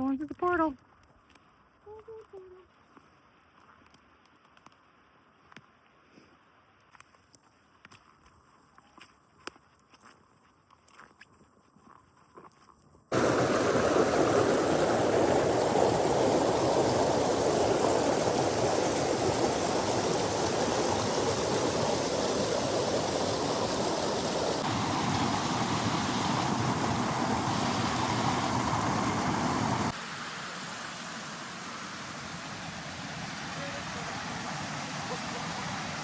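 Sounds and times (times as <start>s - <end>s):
stream water rushing: 13.1s - 36.0s.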